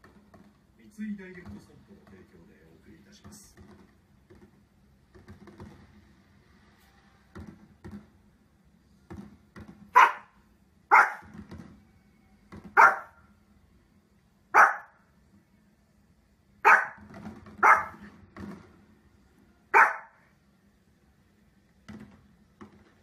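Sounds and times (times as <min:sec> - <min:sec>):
small dog barking: 0:09.9 - 0:11.3, 0:12.7 - 0:13.2, 0:14.5 - 0:15.0, 0:16.6 - 0:18.1, 0:19.7 - 0:20.2.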